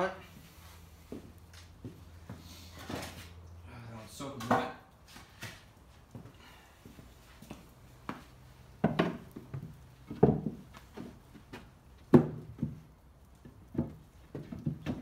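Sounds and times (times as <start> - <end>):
wooden pallet boards knocking: 8.8 - 10.6, 12.1 - 12.8.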